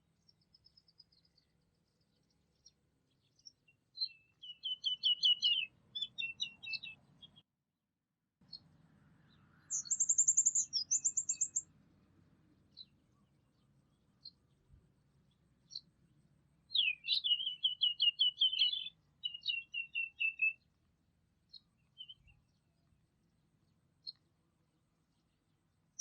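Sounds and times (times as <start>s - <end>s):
songbirds singing: 0.0s - 7.4s, 8.4s - 26.0s
high bird trill: 4.0s - 7.4s, 9.6s - 11.7s, 16.7s - 20.6s.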